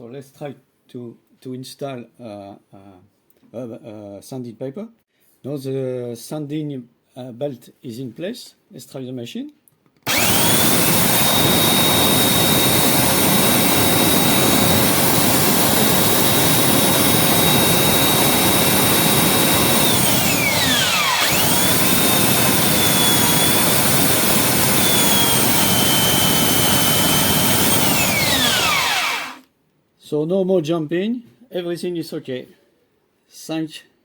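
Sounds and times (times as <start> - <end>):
belt sander whining: 10.1 - 29.5.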